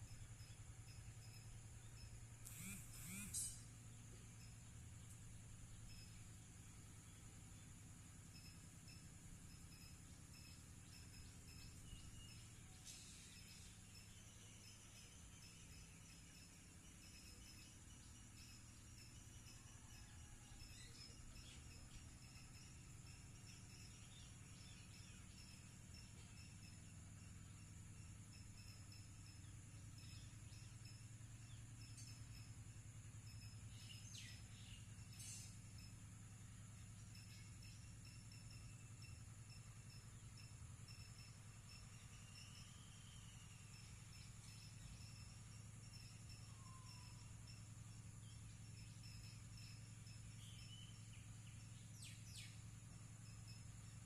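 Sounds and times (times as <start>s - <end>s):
insects buzzing: 0.0s - 54.0s
low steady hum: 0.0s - 54.0s
short repeating chirp: 2.0s - 3.7s.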